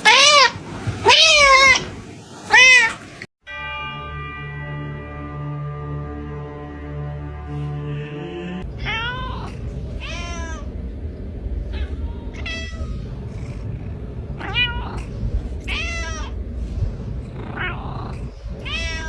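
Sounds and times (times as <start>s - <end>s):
cat meowing: 0.0s - 1.9s, 2.5s - 3.9s, 8.8s - 10.8s, 11.7s - 13.8s, 14.4s - 16.4s, 17.4s - 19.0s
low rumble: 7.2s - 19.0s.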